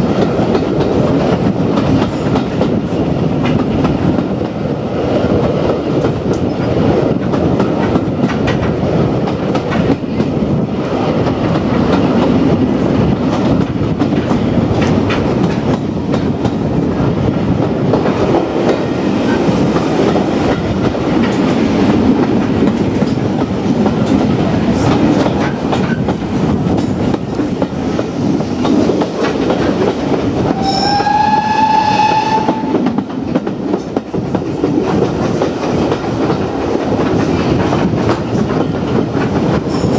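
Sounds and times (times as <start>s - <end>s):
train rumbling at speed: 0.0s - 39.9s
wheels clacking over rail joints: 17.9s - 31.0s
steam locomotive whistle: 30.5s - 33.0s.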